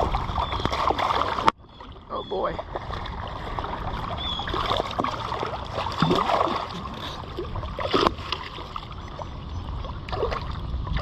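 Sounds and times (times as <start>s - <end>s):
sharp water slap: 0.0s - 1.5s, 4.5s - 6.8s
fish splashing at water surface: 0.0s - 1.6s, 2.6s - 8.9s.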